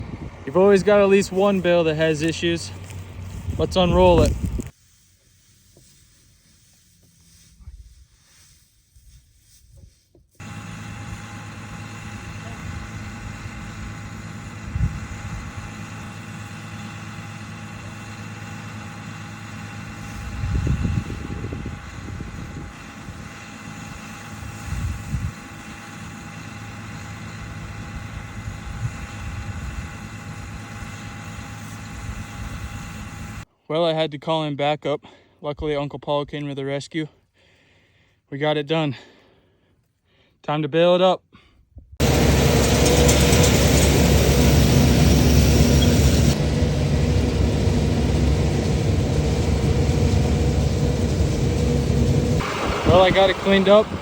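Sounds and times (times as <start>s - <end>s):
tractor engine idling: 0.0s - 4.7s, 10.4s - 33.5s, 42.0s - 54.0s.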